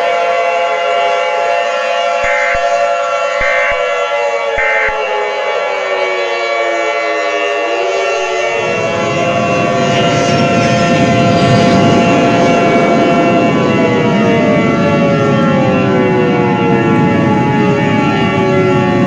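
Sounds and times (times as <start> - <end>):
horn-like drone: 0.0 - 19.0
siren-like wail: 0.0 - 19.0
dense rumbling noise: 8.6 - 16.0.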